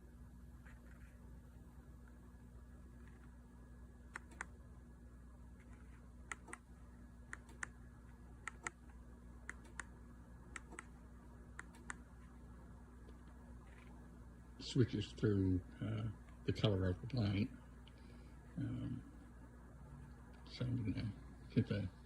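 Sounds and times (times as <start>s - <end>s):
faint steady hum: 0.0s - 22.0s
remote button clicks: 8.4s - 8.8s, 11.6s - 12.0s.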